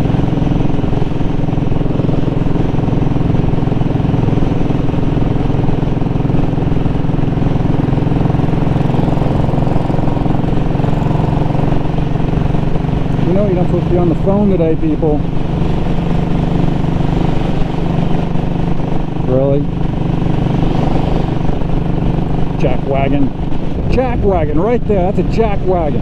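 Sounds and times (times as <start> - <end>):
motorcycle engine cruising: 0.0 - 26.0.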